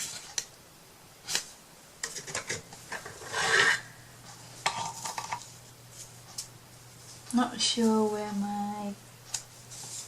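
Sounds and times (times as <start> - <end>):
rustling scrape: 2.2 - 8.1, 9.6 - 10.0.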